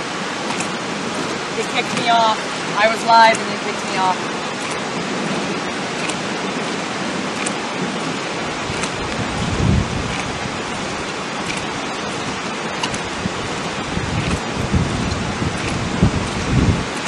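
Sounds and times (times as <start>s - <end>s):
rain hissing: 0.0s - 17.0s
wind: 0.0s - 17.0s
low thunder rumble: 4.1s - 17.0s.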